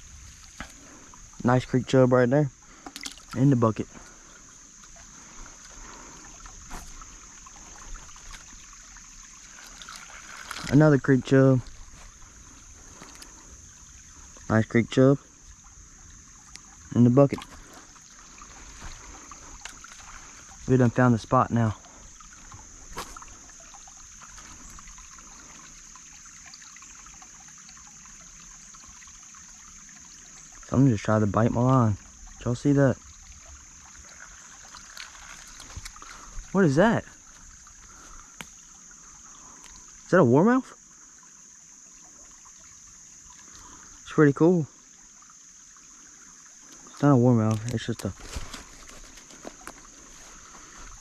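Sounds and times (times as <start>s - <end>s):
creek water trickling: 0.0s - 51.0s
high-pitched hiss: 0.0s - 51.0s.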